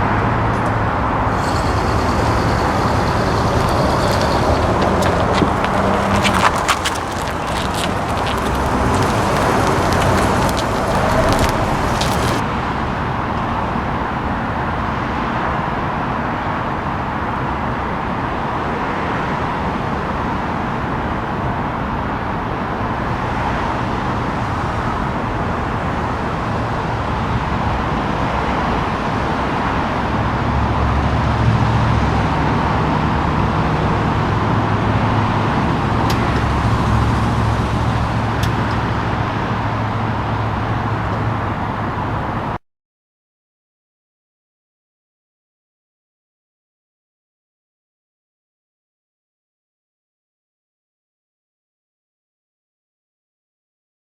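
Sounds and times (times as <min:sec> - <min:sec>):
low engine drone: 0:00.0 - 0:06.7
pickup engine driving: 0:00.5 - 0:14.6.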